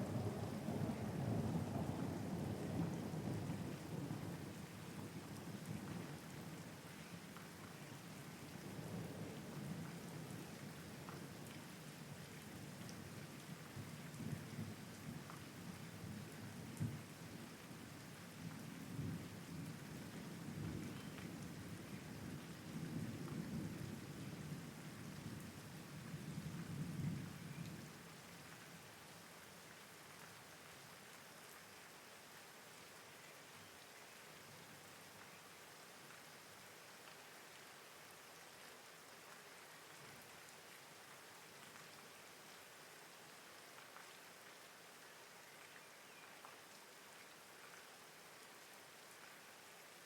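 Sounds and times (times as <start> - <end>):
low rolling thunder: 0.0 - 4.4
steady rain: 0.0 - 50.0.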